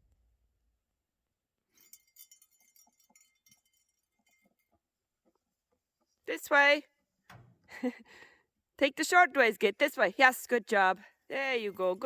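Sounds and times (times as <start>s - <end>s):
faint metallic jingling: 1.7s - 5.0s.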